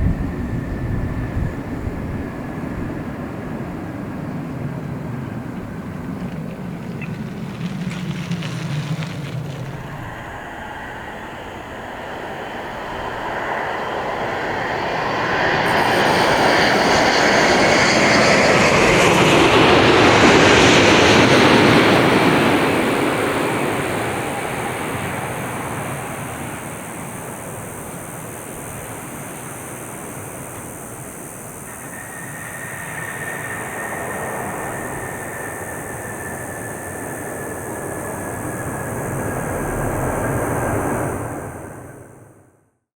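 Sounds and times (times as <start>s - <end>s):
jet airliner passing overhead: 0.0s - 42.5s
faint thin whine: 15.6s - 19.1s.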